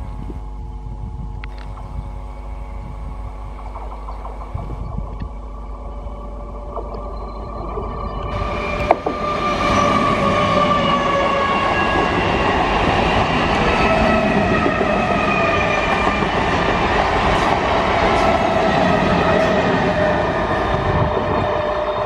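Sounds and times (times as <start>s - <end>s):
train motor whining tones: 0.0s - 22.0s
train wheels rushing on rail: 2.8s - 7.6s, 8.2s - 22.0s.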